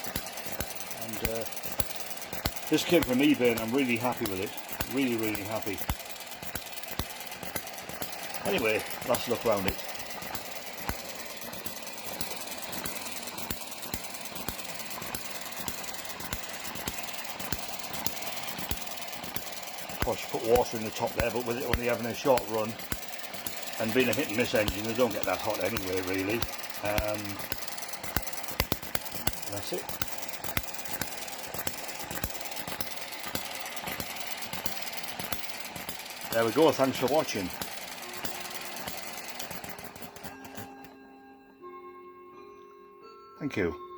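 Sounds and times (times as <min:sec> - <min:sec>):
fast mechanical ticking: 0:00.0 - 0:40.9
hit-and-miss engine popping: 0:00.0 - 0:41.0.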